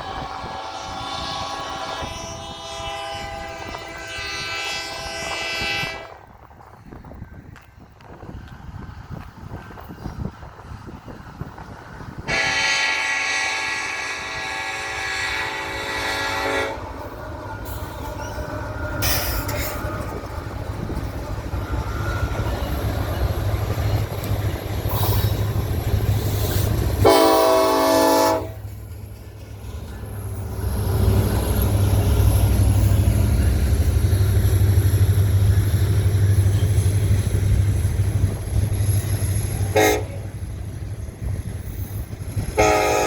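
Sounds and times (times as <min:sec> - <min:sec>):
locomotive air horn: 0:00.0 - 0:06.3, 0:12.3 - 0:17.1, 0:27.0 - 0:28.6, 0:39.7 - 0:40.4, 0:42.5 - 0:43.0
train rumbling past: 0:00.0 - 0:43.0.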